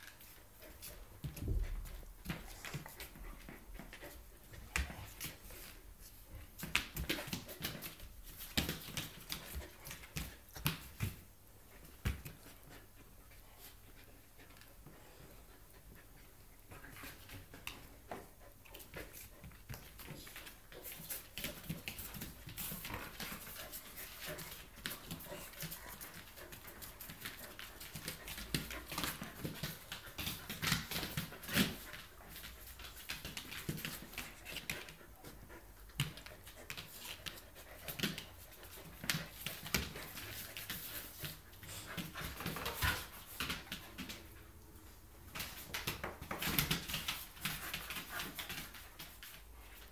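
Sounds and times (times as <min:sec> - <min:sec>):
dog panting: 0:11.7 - 0:44.4.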